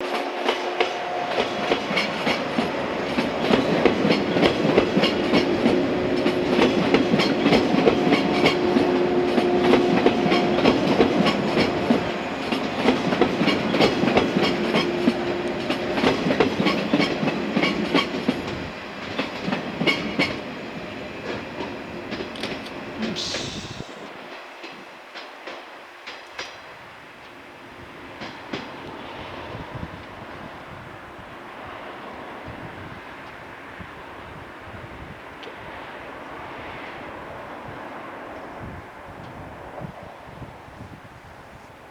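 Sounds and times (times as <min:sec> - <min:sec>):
train wheels clacking over rail joints: 0:00.0 - 0:27.4, 0:28.1 - 0:29.0
train hum: 0:00.0 - 0:41.9.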